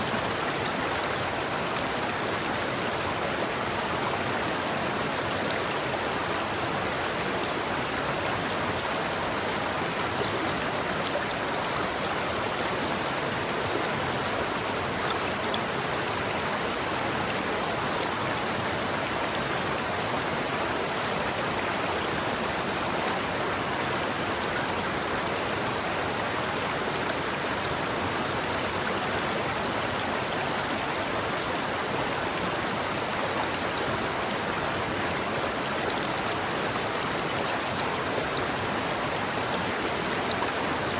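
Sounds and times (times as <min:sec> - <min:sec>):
river water flowing over rocks: 0:00.0 - 0:40.9.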